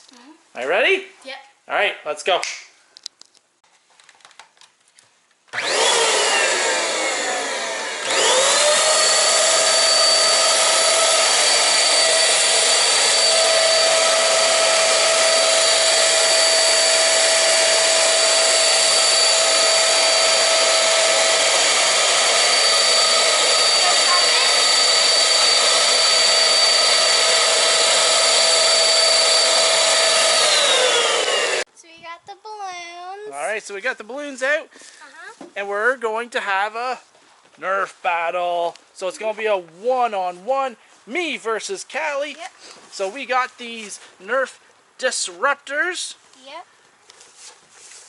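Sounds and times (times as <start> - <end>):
electric balloon pump whirring: 5.5 - 31.7.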